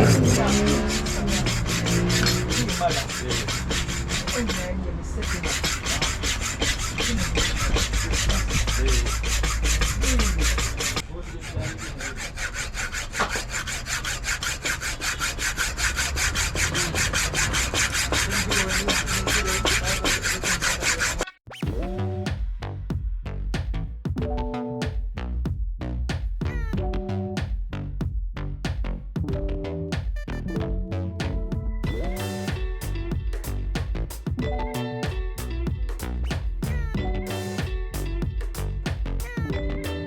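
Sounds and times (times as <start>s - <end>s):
music with hi-hat and bass: 0.0s - 3.0s, 21.6s - 40.0s.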